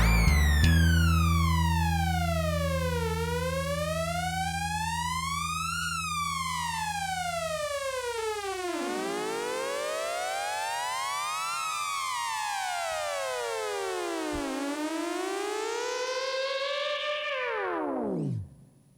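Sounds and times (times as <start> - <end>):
synthesizer tone gliding in pitch: 0.0 - 1.2
echoing synthesizer glide: 0.0 - 2.0
low held drone: 0.0 - 8.0.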